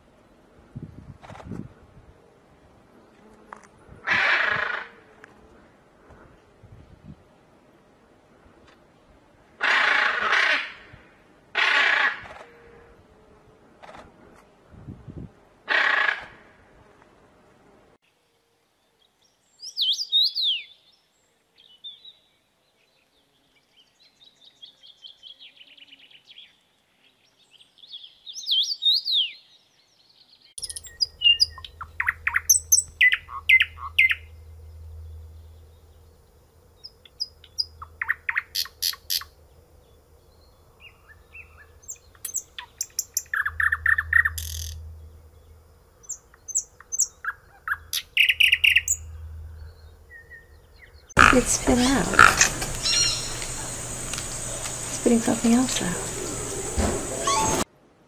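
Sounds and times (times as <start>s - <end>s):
small birds chirping and trilling: 18.8s - 57.6s
faint steady hum: 30.6s - 57.6s.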